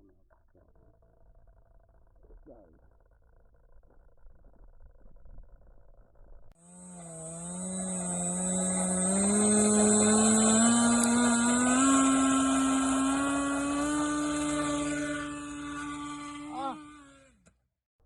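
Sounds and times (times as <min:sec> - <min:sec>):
model plane electric motor whine: 0:06.6 - 0:17.6.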